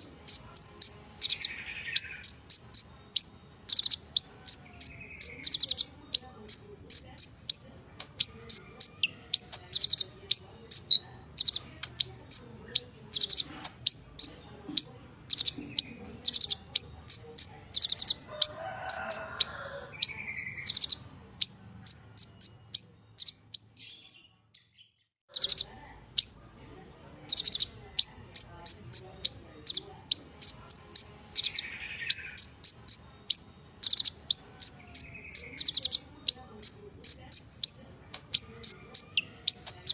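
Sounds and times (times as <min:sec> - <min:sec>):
sunbird singing high chips: 0:27.3 - 0:36.5.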